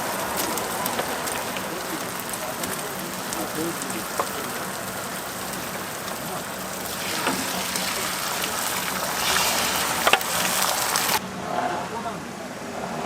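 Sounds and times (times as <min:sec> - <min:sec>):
food sizzling on griddle: 0:00.0 - 0:11.2.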